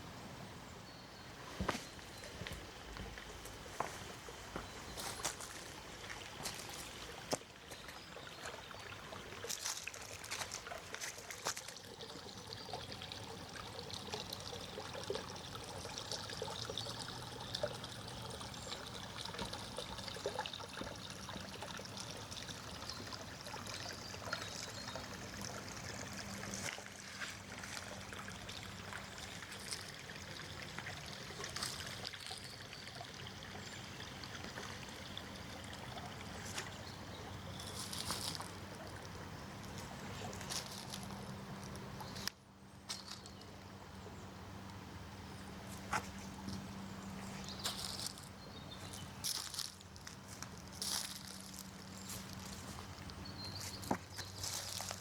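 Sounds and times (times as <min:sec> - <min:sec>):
stream trickling: 0:00.9 - 0:55.0
footsteps on path: 0:01.5 - 0:08.6, 0:09.5 - 0:11.7, 0:37.6 - 0:38.6, 0:39.6 - 0:41.8, 0:47.4 - 0:55.0.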